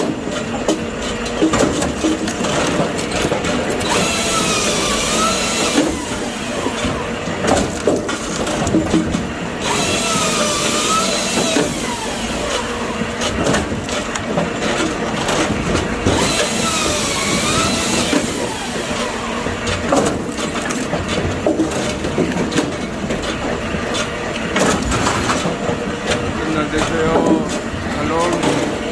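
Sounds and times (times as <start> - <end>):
machinery running: 0.0 - 28.9
firewood knocking and clattering: 19.6 - 28.9.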